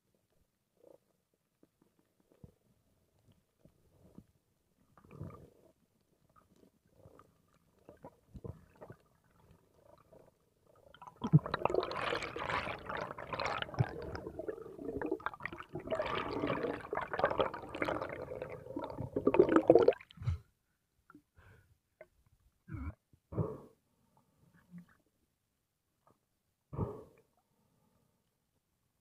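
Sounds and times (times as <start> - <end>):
underwater bubbling and rushing: 6.9 - 20.0.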